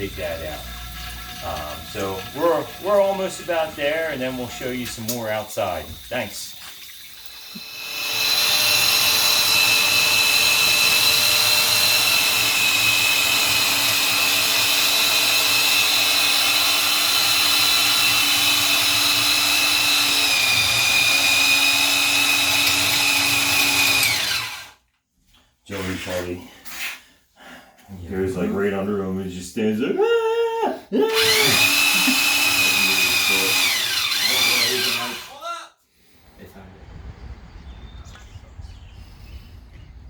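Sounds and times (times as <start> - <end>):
power drill whining: 1.4 - 24.8, 31.1 - 35.4.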